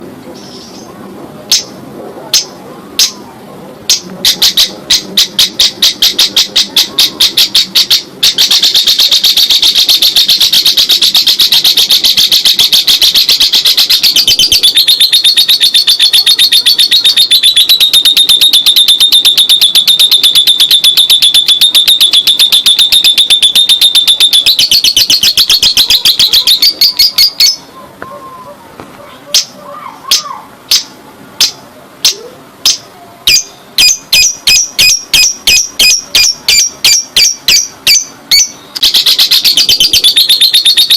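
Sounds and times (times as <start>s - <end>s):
lovebird chattering song: 3.9s - 27.9s, 29.3s - 40.9s.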